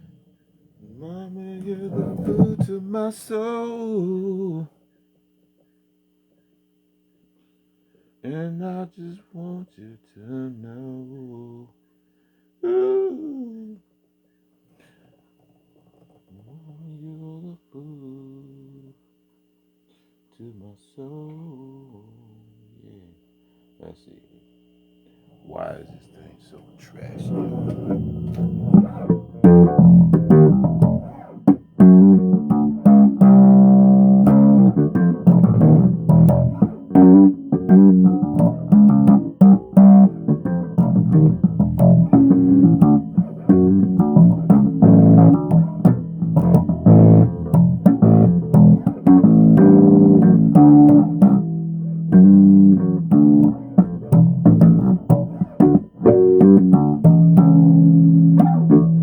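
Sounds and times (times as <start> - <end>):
bass guitar plucked notes: 1.7 - 2.9, 27.2 - 59.0.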